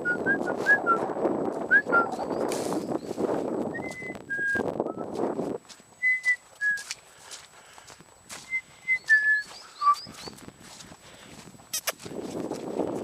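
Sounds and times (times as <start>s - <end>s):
rustling noise: 0.2s - 7.3s.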